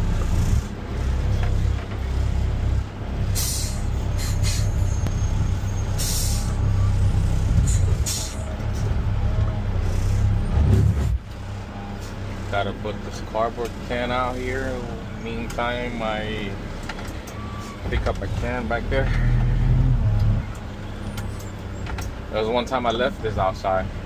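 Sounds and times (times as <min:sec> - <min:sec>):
diesel engine droning: 0:00.0 - 0:24.0
air brake hisses: 0:03.4 - 0:04.9, 0:06.0 - 0:06.6, 0:07.6 - 0:08.4.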